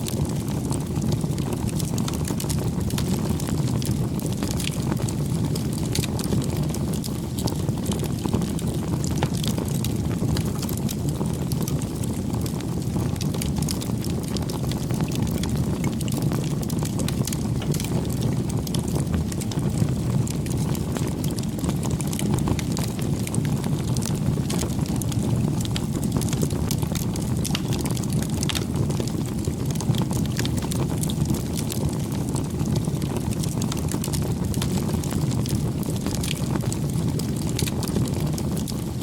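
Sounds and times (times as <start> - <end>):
campfire flame rumble: 0.0 - 39.0
wood crackling and popping: 0.0 - 39.0.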